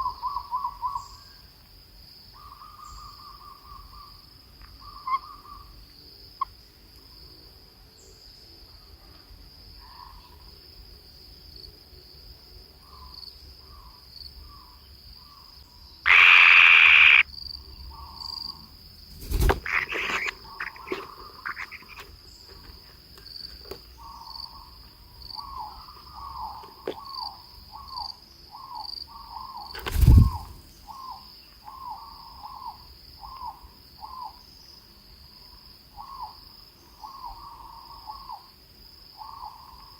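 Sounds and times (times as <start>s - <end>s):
insect trill: 0.0s - 39.9s
loud harsh burst: 16.1s - 17.2s.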